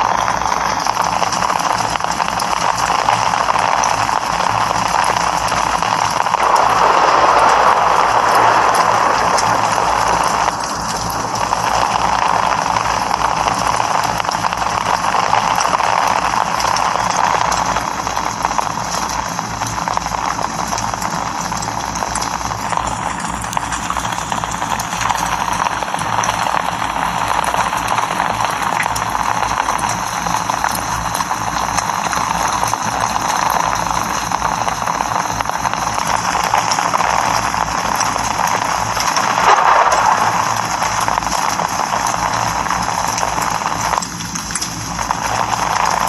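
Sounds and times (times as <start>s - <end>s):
rain hissing: 0.0s - 46.0s.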